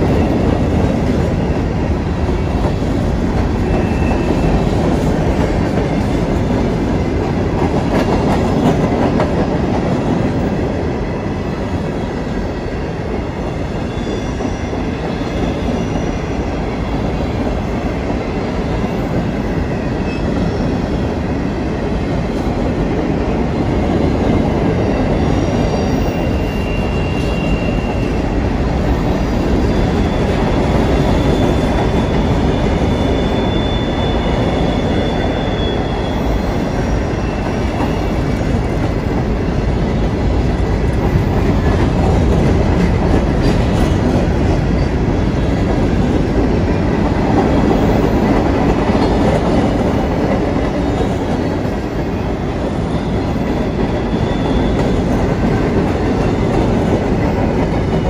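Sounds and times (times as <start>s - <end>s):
high wheel squeal: 24.8s - 28.4s, 29.1s - 38.4s, 53.0s - 55.2s.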